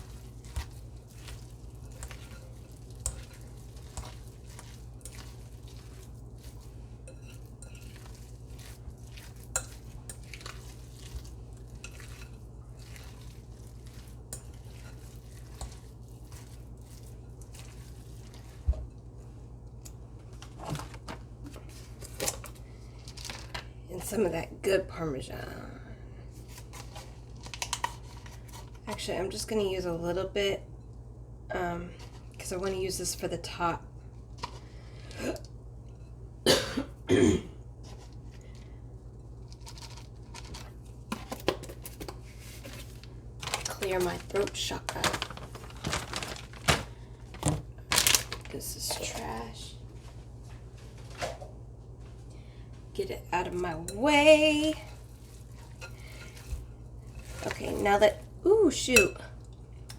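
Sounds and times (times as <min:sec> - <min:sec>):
spoon stirring and scraping bowl: 0:00.0 - 0:24.2, 0:26.4 - 0:29.1, 0:37.8 - 0:43.0, 0:48.6 - 0:49.6, 0:53.4 - 0:59.9
woman coughing: 0:36.4 - 0:37.6.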